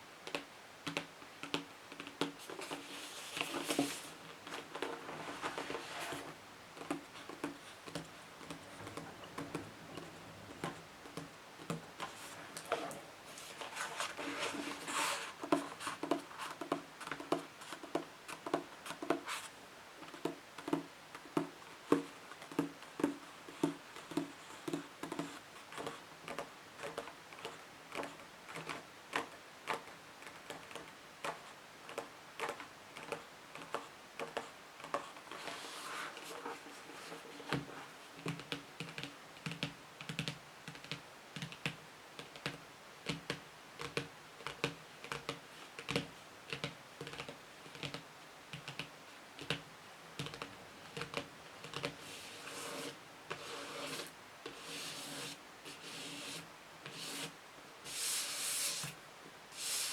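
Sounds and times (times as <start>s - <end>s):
fingertips tapping on books: 0.2s - 59.0s
nails scratching on books: 11.7s - 19.5s, 50.3s - 59.9s.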